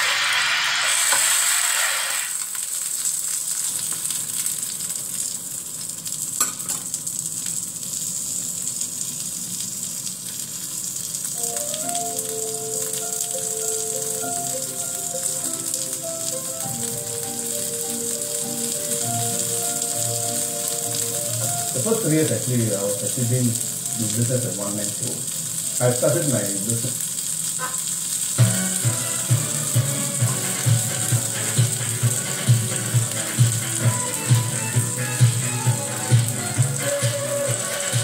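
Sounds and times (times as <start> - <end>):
patty sizzling in a frying pan: 0.0 - 38.0
soft background music: 11.4 - 26.7, 28.4 - 38.0.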